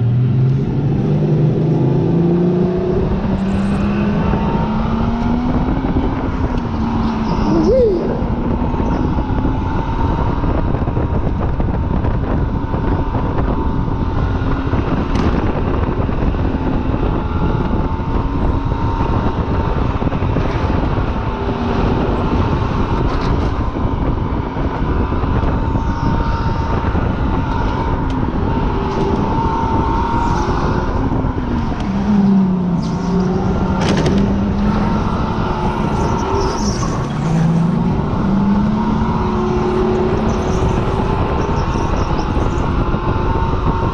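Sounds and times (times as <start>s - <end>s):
car engine running hard: 0.0s - 43.9s
road noise: 0.0s - 43.9s
wind noise: 0.0s - 43.9s.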